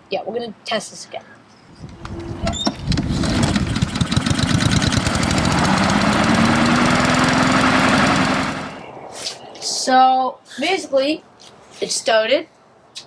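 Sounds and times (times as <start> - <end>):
lawn mower engine starting and running: 1.8 - 8.8.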